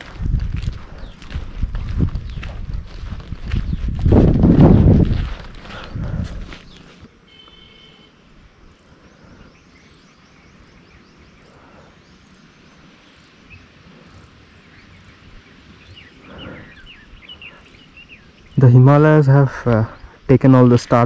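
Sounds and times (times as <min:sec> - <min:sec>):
faint bird chirps: 0:06.6 - 0:20.3.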